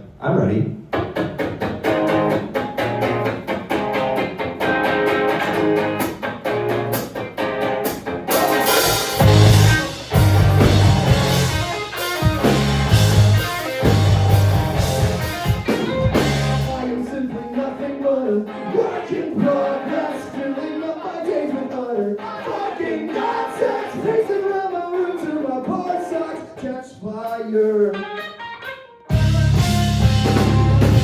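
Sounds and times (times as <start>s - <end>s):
live band playing: 0.9s - 17.0s, 27.6s - 31.0s.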